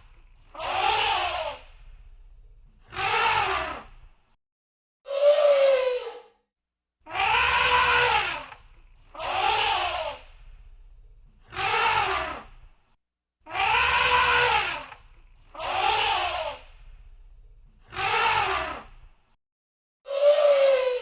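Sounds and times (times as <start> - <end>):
elephant trumpeting: 7.1 - 8.6, 13.5 - 15.0.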